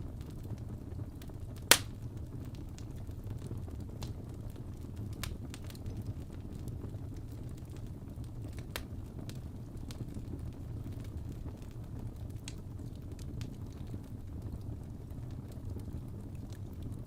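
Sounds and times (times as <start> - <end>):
wood fire crackling: 0.0 - 17.0
sharp pops of fire: 1.2 - 6.3.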